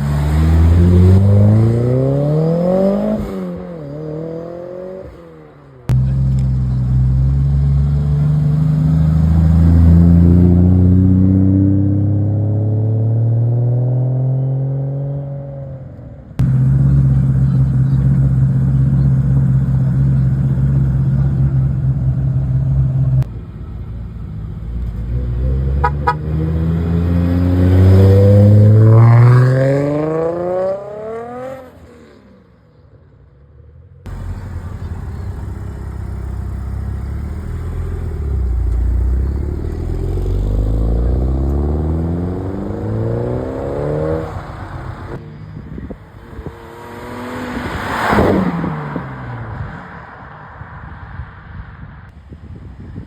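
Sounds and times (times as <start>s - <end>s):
engine revving: 0.0s - 15.4s, 16.4s - 23.3s, 25.0s - 32.0s, 34.1s - 45.2s
cars accelerating hard: 0.0s - 15.6s, 16.4s - 23.3s, 25.0s - 32.3s, 34.1s - 51.6s.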